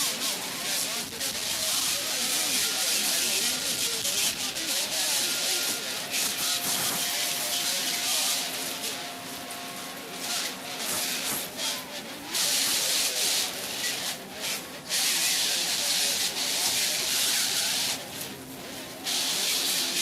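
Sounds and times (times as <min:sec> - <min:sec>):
loud hissing noise: 0:00.0 - 0:14.1.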